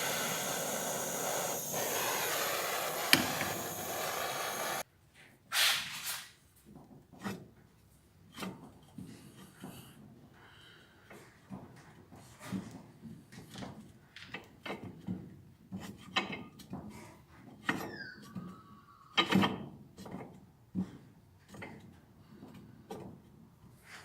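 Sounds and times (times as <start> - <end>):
short falling squeak: 17.8 - 18.8.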